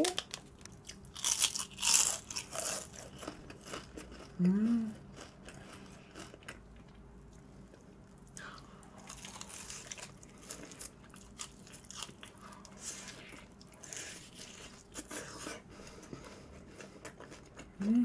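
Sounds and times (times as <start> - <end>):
crisp crunching of fried chicken: 0.2 - 4.4, 9.0 - 15.1
chewing: 0.6 - 7.4, 9.0 - 17.9.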